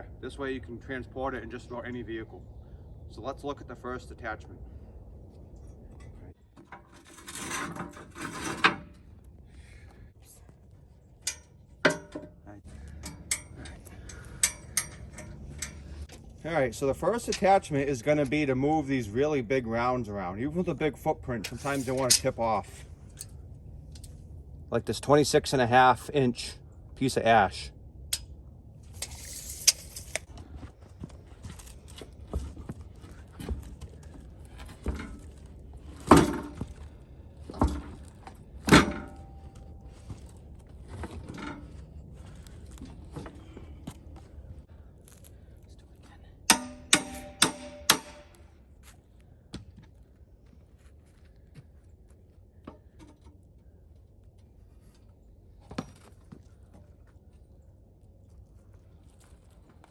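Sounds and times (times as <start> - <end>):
ringing metal clanks: 11.2 - 16.0, 46.5 - 48.4.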